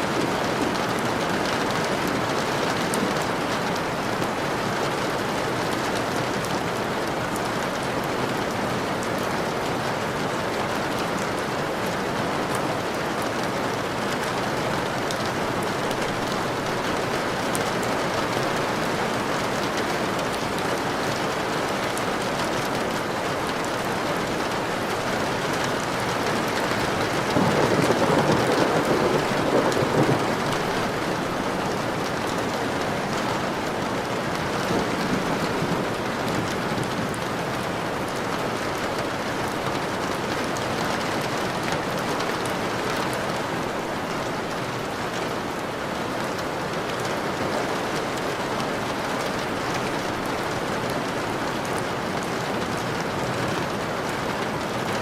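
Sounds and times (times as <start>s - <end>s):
steady rain: 0.0s - 55.0s
thunder rumbling: 26.5s - 32.5s, 33.1s - 37.8s.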